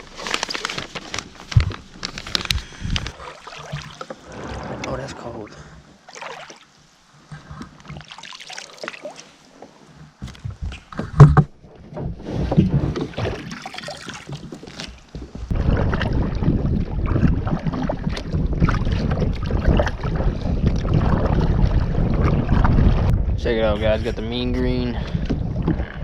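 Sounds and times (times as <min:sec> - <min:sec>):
kayak rushing through water: 0:02.4 - 0:09.9, 0:12.2 - 0:23.2
knocks and splashes: 0:03.0 - 0:05.0, 0:06.1 - 0:06.7, 0:10.1 - 0:23.3, 0:24.6 - 0:26.0.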